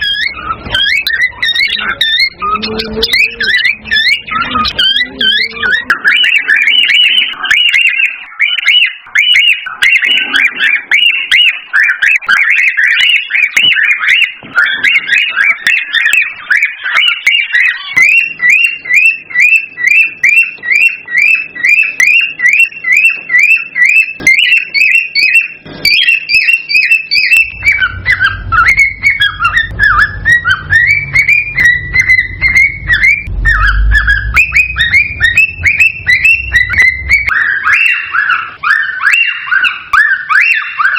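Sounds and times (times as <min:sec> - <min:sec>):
cockatiel whistled chirps: 0:00.0 - 0:40.9
low rumble: 0:27.4 - 0:37.3.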